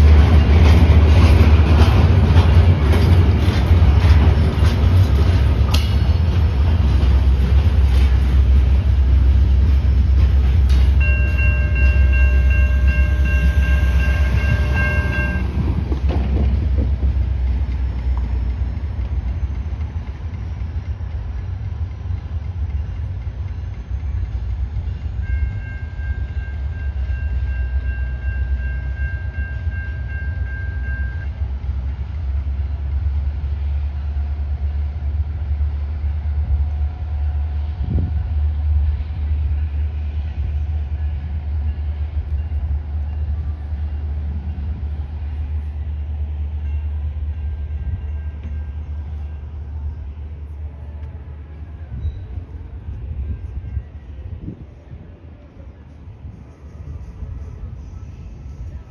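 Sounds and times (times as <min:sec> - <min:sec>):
freight train rumbling past: 0:00.0 - 0:58.9
train horn: 0:11.0 - 0:15.8.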